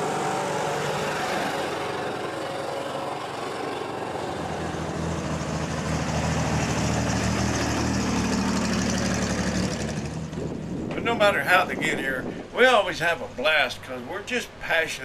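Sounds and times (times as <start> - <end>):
old vehicle engine running: 0.0 - 11.1.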